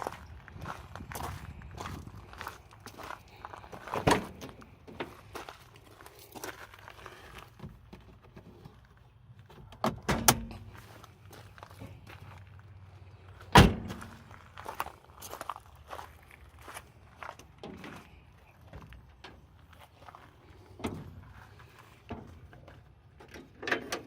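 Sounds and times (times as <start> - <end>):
vehicle door shutting: 9.7 - 10.7, 13.5 - 14.1.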